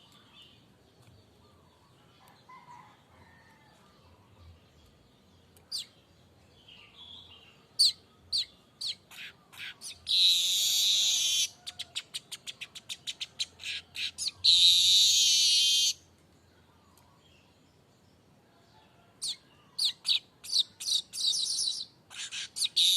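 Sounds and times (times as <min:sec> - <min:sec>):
bird chirps: 0:04.1 - 0:18.0, 0:19.2 - 0:22.9
harsh buzzing birdsong: 0:04.1 - 0:18.3, 0:19.2 - 0:22.9.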